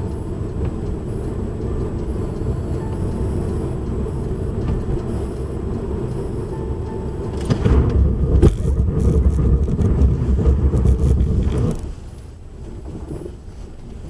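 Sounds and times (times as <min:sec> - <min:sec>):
car road and engine rumble: 0:00.0 - 0:14.0
sharp knocks and clatters: 0:07.4 - 0:11.9.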